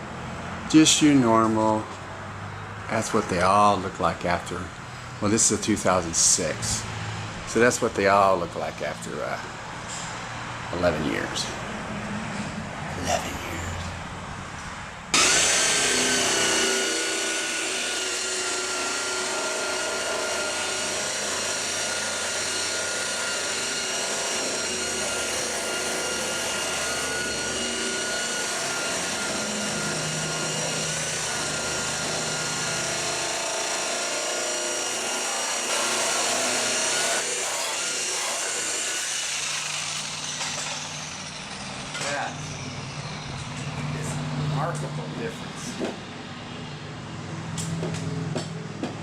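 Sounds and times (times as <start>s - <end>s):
electric buffer motor whine: 15.1s - 43.9s.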